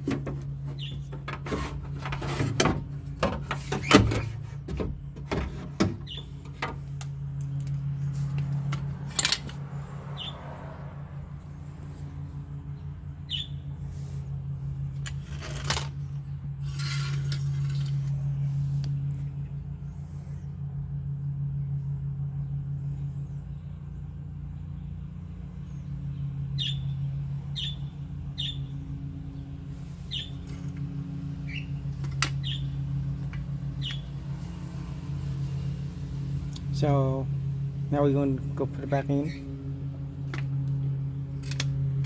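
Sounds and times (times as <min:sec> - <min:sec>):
steady low hum: 0:00.0 - 0:42.0
bird chirping: 0:00.7 - 0:01.1, 0:06.0 - 0:06.4, 0:10.1 - 0:10.5, 0:12.7 - 0:13.8, 0:25.6 - 0:30.6, 0:31.4 - 0:31.8, 0:32.4 - 0:32.8, 0:33.8 - 0:34.2.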